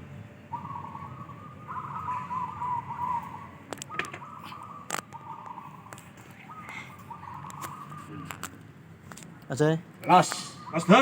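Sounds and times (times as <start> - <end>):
doves cooing: 0.4 - 8.7.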